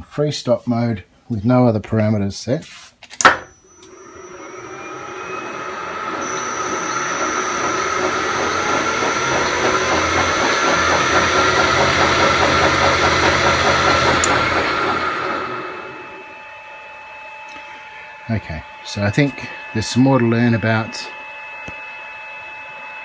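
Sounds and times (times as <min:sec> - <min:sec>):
lathe motor whining: 0:03.5 - 0:23.0
spindle coasting down: 0:03.7 - 0:16.2
cyclical noise through headstock: 0:03.9 - 0:16.1.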